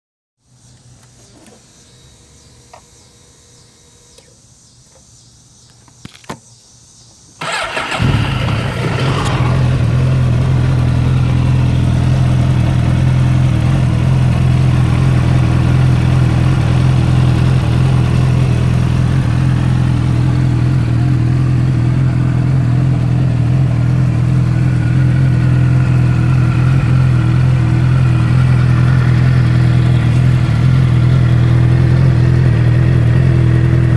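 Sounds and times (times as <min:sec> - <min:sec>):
motorcycle engine starting and idling: 0:00.6 - 0:05.2, 0:07.4 - 0:33.9
click: 0:04.2 - 0:05.1.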